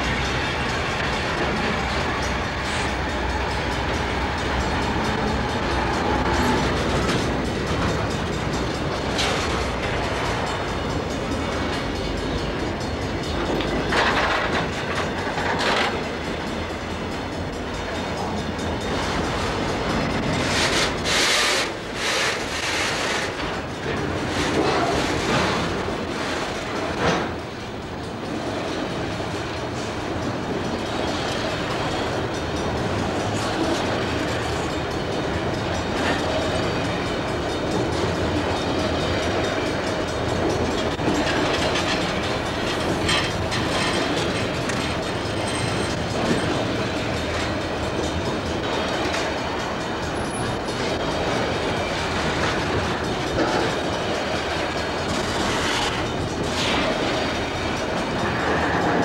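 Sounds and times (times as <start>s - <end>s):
steel wheels rumbling on rail: 0.0s - 59.0s.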